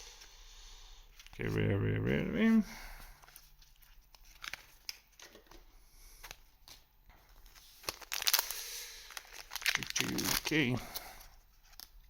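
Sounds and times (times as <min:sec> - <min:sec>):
papery rustling: 0:03.0 - 0:05.6, 0:06.2 - 0:12.0
cards clicking and rustling: 0:03.2 - 0:05.6, 0:06.2 - 0:11.9.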